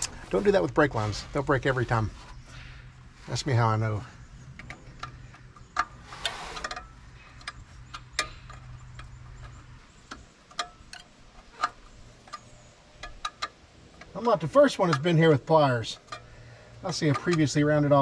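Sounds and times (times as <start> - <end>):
short scrape: 6.0 - 6.7
hand tools clinking on metal: 6.6 - 18.0.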